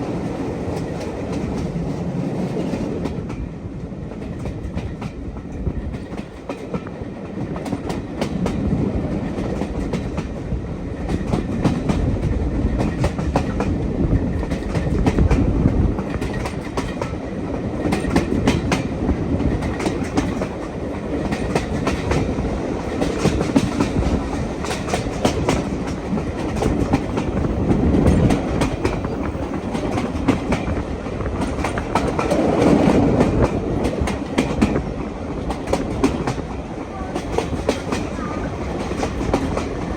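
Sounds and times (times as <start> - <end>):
train rumbling on track: 0.0 - 39.9
wheels clicking over rail joints: 11.0 - 39.9.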